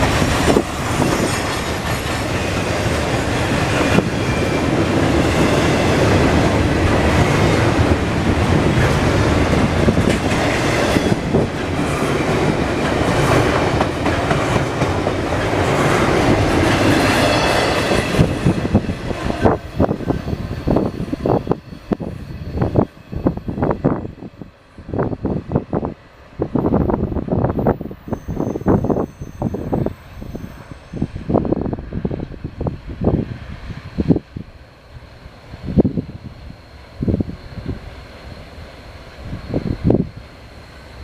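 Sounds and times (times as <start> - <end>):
clickety-clack over rail joints: 0.0 - 22.9
train wheels rumbling on rail: 0.0 - 41.0.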